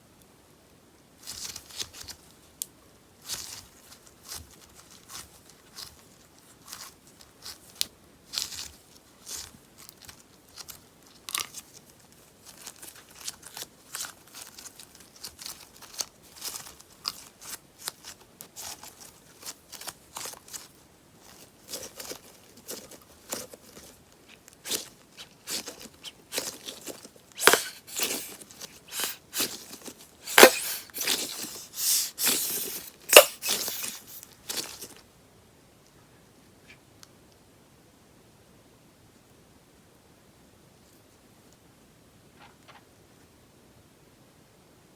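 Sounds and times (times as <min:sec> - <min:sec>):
slime crackling and tearing: 0:24.6 - 0:35.0.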